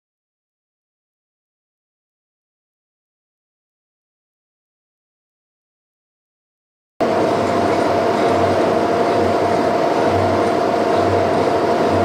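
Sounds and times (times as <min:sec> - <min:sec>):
boring machine whine: 0:07.0 - 0:12.0.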